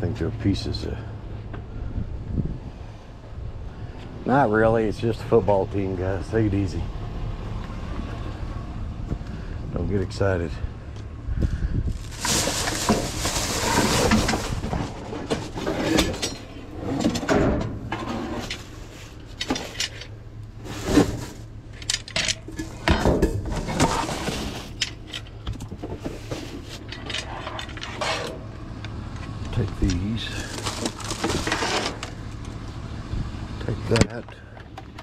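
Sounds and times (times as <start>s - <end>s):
scrap items clattering: 11.9s - 21.5s, 22.3s - 28.4s, 29.8s - 32.2s.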